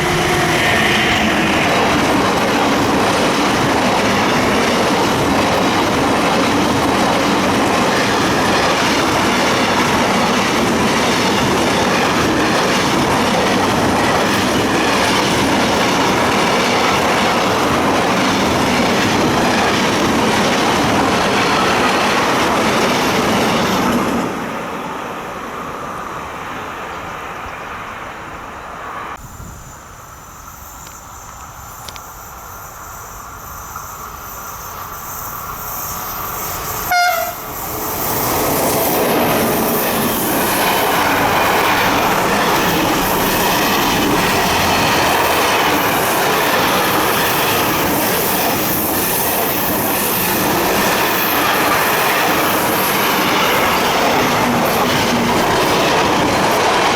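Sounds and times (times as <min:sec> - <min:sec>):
train wheels rolling on track: 0:00.0 - 0:56.9
brief loud tone: 0:36.9 - 0:37.5.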